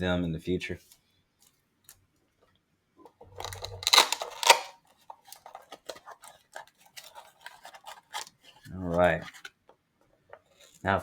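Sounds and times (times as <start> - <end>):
packaging rustling and crinkling: 3.1 - 9.6.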